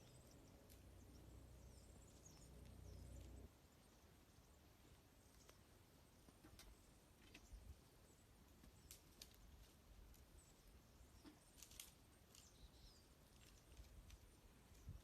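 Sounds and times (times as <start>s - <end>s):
campfire crackling: 0.0s - 7.3s, 11.4s - 12.6s
small birds chirping: 0.0s - 15.0s.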